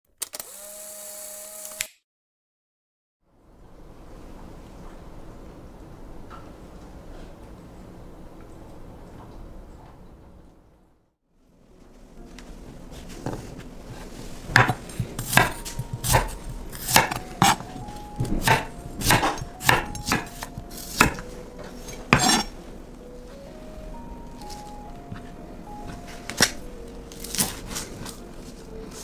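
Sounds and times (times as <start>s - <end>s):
quiet background music: 3.3s - 29.0s
kitchen utensils clattering: 14.4s - 22.6s.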